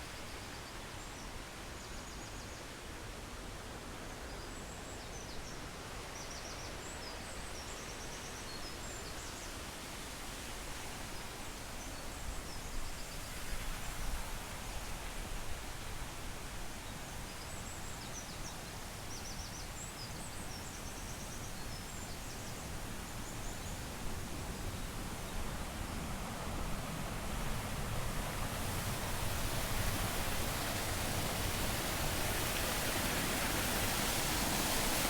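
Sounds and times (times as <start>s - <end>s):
waterfall rushing: 28.6s - 35.0s.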